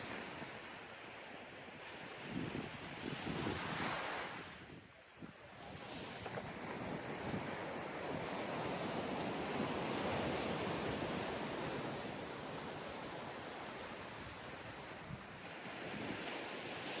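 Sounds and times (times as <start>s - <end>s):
ocean wave washing on sand: 5.5s - 17.0s.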